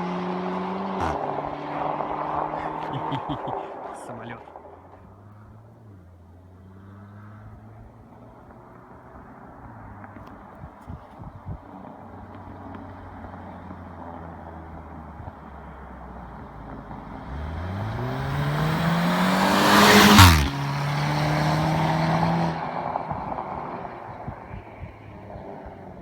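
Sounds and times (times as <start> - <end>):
car engine idling and revving: 0.0 - 26.0
exhaust burst: 17.3 - 24.7.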